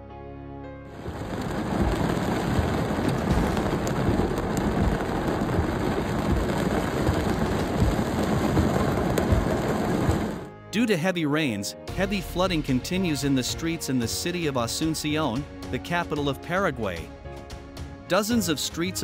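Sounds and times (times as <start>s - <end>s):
music: 0.0s - 19.0s
heavy rain pouring: 0.9s - 10.5s.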